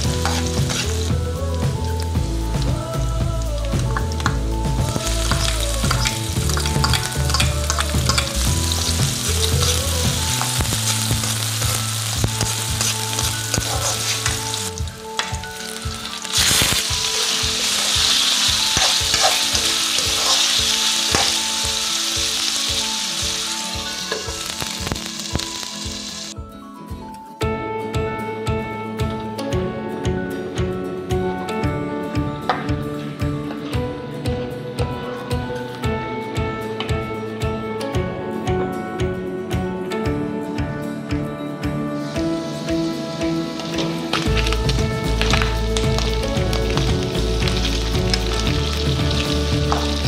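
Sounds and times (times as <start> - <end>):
food sizzling in a wok: 0.0 - 26.4, 42.0 - 50.0
metal spatula stirring: 0.1 - 1.0, 5.2 - 9.8, 12.4 - 21.7.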